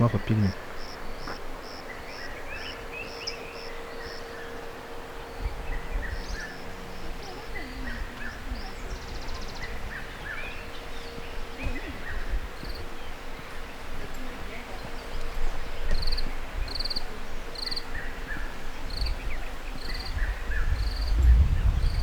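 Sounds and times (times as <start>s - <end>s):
birds chirping: 0.0s - 22.0s
insects: 0.0s - 22.0s
low rumble: 20.2s - 22.0s.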